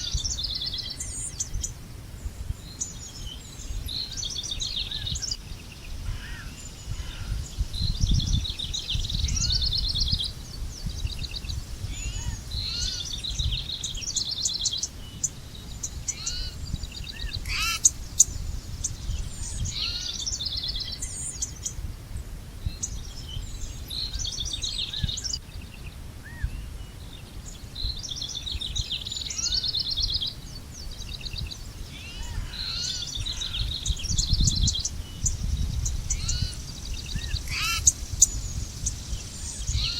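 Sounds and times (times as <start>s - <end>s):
bird chirps: 2.5s - 21.8s, 22.6s - 39.9s
bird trilling: 16.1s - 18.3s, 37.2s - 38.4s.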